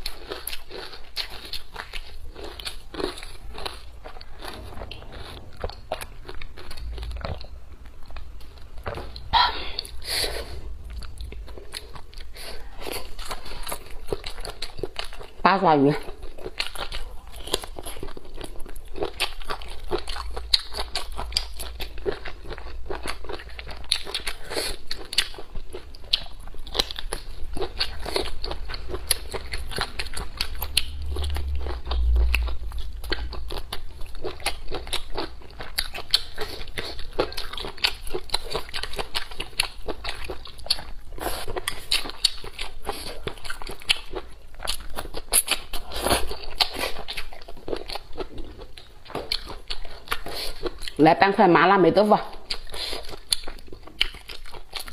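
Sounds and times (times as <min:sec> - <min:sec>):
biting and chewing: 0:00.0 - 0:51.0, 0:52.3 - 0:54.9.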